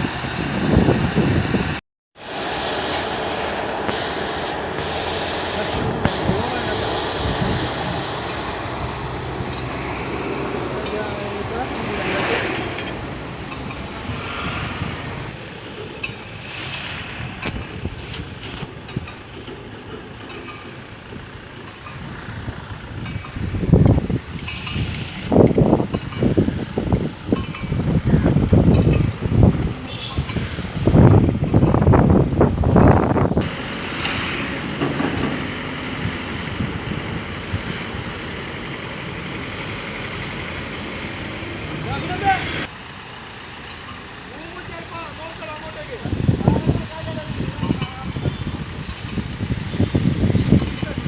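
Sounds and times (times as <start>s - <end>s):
wind on microphone: 0.0s - 15.4s, 16.3s - 19.2s, 22.0s - 33.6s, 46.1s - 51.0s
heavy machinery rumbling: 0.0s - 51.0s.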